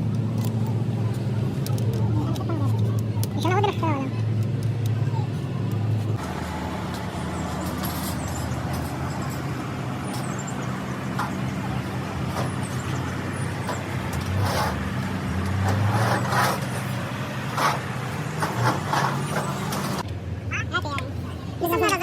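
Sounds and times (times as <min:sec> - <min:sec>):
diesel engine running: 0:00.0 - 0:22.0
metal knocks and clatters: 0:07.4 - 0:20.0.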